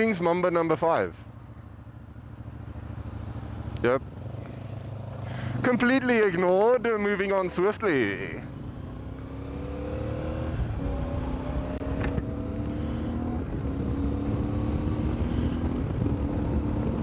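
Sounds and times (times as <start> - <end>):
motorcycle engine running: 1.3 - 17.0
wind rumbling on microphone: 10.4 - 17.0.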